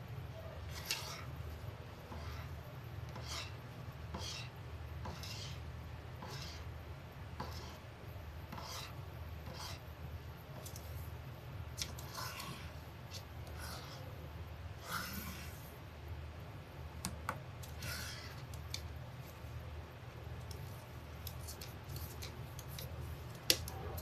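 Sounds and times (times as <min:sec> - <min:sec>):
steady low hum: 0:00.0 - 0:24.0
parrot scratching and rasping: 0:00.6 - 0:01.4, 0:02.0 - 0:06.7, 0:07.4 - 0:07.9, 0:08.5 - 0:09.9, 0:11.8 - 0:14.1, 0:14.8 - 0:15.8, 0:17.6 - 0:19.4, 0:20.5 - 0:24.0.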